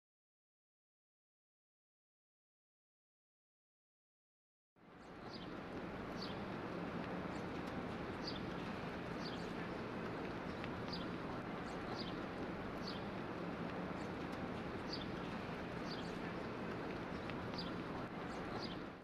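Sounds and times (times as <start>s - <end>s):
steady background hiss: 4.8s - 19.0s.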